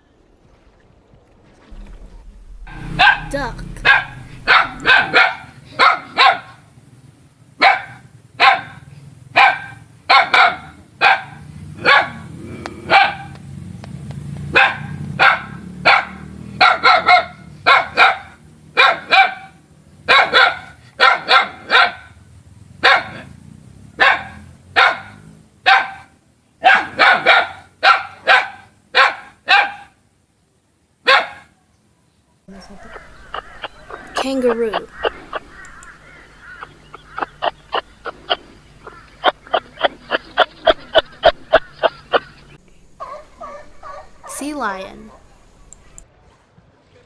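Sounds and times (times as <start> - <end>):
faint low rumble: 1.8 - 5.0
dog barking: 1.8 - 6.5, 7.6 - 8.7, 9.4 - 12.2, 12.9 - 13.3, 14.6 - 18.2, 18.8 - 19.4, 20.1 - 22.0, 24.0 - 25.1, 25.7 - 26.0, 26.6 - 29.9, 31.1 - 31.5, 32.5 - 46.0.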